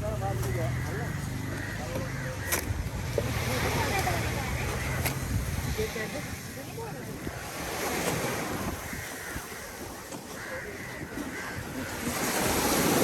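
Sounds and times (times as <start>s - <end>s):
wind buffeting the microphone: 2.5s - 13.0s
surf washing on a beach: 3.0s - 13.0s.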